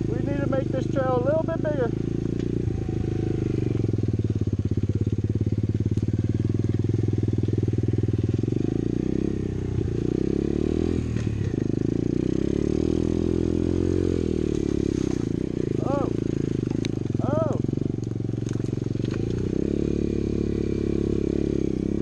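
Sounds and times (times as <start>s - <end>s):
motorbike engine revving: 0.0s - 22.0s.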